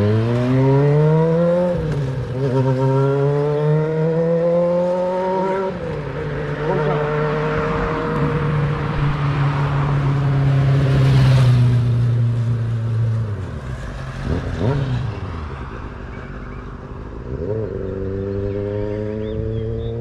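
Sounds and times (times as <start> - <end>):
motorcycle engine revving: 0.0 - 9.1, 13.8 - 15.5, 17.2 - 20.0.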